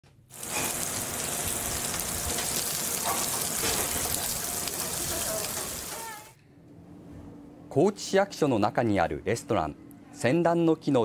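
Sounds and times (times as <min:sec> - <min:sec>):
patties sizzling in hot oil: 0:00.2 - 0:06.3.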